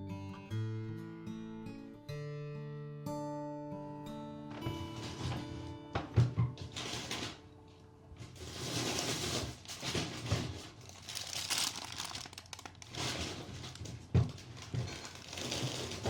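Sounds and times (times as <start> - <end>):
packaging crinkling and rustling: 6.6 - 7.5, 8.2 - 16.0.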